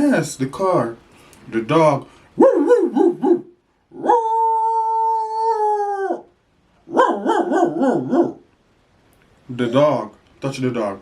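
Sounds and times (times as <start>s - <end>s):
toy dog barking: 2.4s - 4.3s, 6.9s - 8.4s
toy dog howling: 2.4s - 6.3s.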